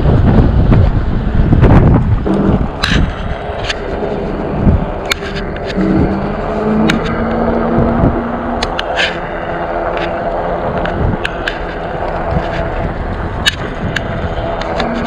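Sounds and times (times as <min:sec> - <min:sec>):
tyres rumbling on road: 0:00.0 - 0:15.0
wind: 0:00.0 - 0:15.0
bike clicks and rattles: 0:02.7 - 0:07.2, 0:08.5 - 0:15.0.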